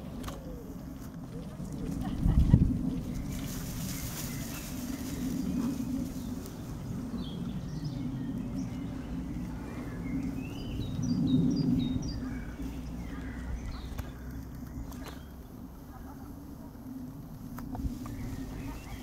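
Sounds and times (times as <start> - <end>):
low background rumble: 0.0 - 19.0
songbirds chirping high notes: 2.9 - 16.0.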